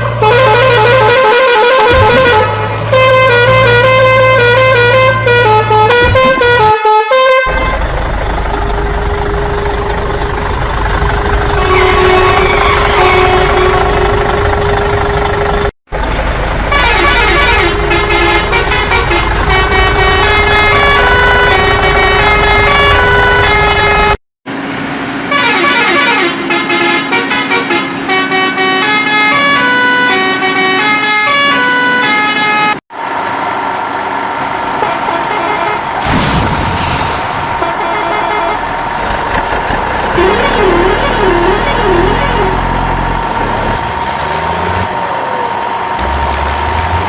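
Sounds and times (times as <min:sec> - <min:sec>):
cartoon horn tune: 0:00.0 - 0:07.8, 0:11.5 - 0:14.5, 0:16.7 - 0:24.2, 0:25.3 - 0:32.8, 0:37.6 - 0:43.0
low engine rumble: 0:07.5 - 0:25.2, 0:33.0 - 0:47.0.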